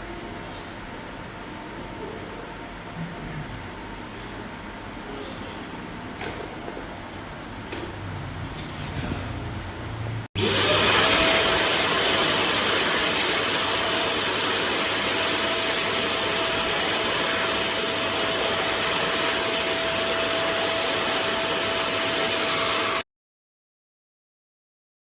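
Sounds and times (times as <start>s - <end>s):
vacuum cleaner running: 10.4s - 23.0s.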